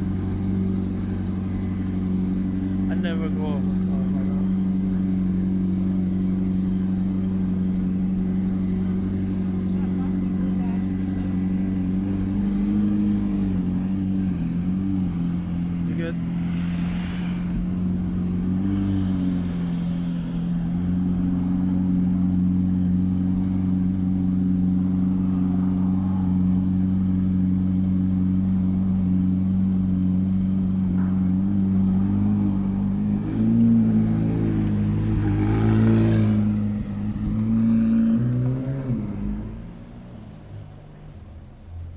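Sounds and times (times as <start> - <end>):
engine speed rising: 0.0 - 22.3, 30.6 - 40.6
car engine idling: 0.0 - 41.9.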